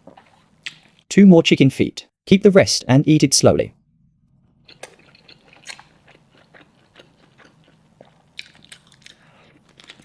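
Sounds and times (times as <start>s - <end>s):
person chewing crunchy food: 4.6s - 10.0s.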